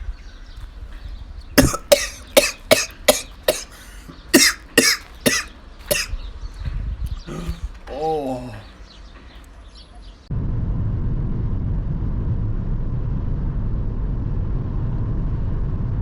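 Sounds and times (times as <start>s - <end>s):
person coughing: 1.6s - 6.1s, 7.3s - 8.7s.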